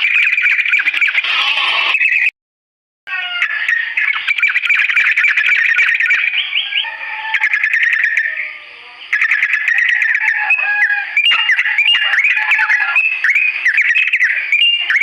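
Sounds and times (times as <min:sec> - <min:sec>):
bird whistled phrases: 0:00.0 - 0:01.2, 0:01.9 - 0:02.3, 0:03.2 - 0:15.0
bird rattling song: 0:00.0 - 0:01.3, 0:03.5 - 0:06.8, 0:09.1 - 0:15.0.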